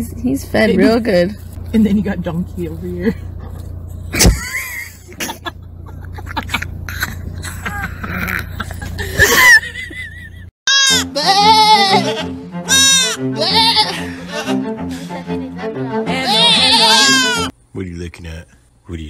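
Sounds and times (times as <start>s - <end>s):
steady low hum: 0.0s - 10.5s
voices and laughter: 3.0s - 10.5s
goat kid bleating: 10.7s - 14.6s, 16.1s - 17.5s.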